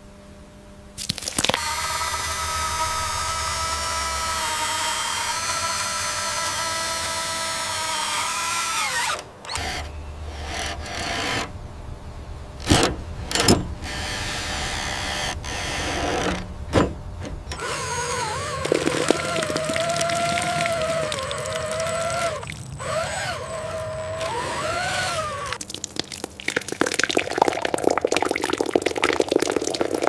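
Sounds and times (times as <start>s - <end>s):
whining motor: 1.6s - 25.6s
sharp knocks: 16.0s - 17.7s.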